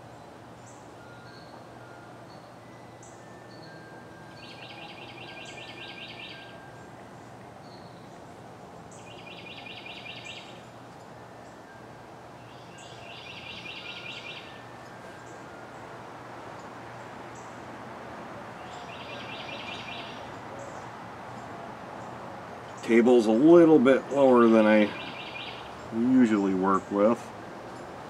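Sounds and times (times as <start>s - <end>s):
background noise: 0.0s - 28.0s
songbird trilling: 4.3s - 6.6s, 8.9s - 10.7s, 12.4s - 15.4s, 18.6s - 22.1s, 22.7s - 27.2s
high bird chip notes: 18.6s - 27.2s.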